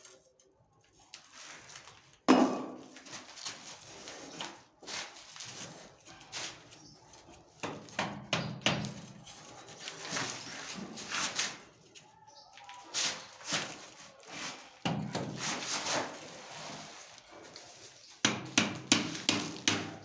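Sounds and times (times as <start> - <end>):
tools knocking and scraping: 2.3 - 3.0, 7.6 - 11.2, 18.2 - 20.0.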